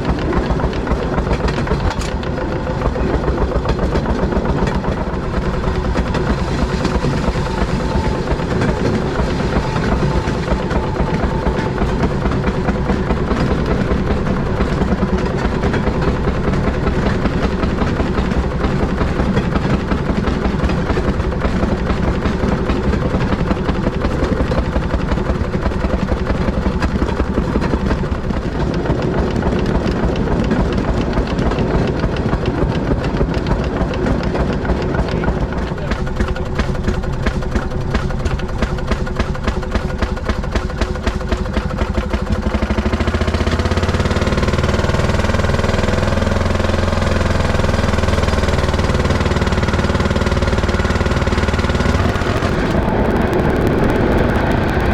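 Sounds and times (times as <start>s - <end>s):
rail motorcar engine running: 0.0s - 54.9s.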